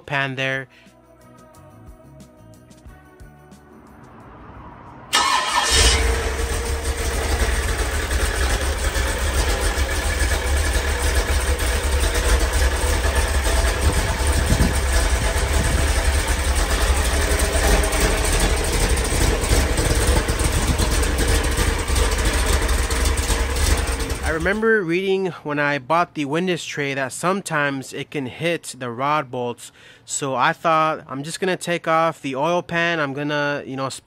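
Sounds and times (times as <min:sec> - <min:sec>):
engine idling: 0:05.1 - 0:24.6
rhythmic tapping from engine: 0:06.3 - 0:24.5.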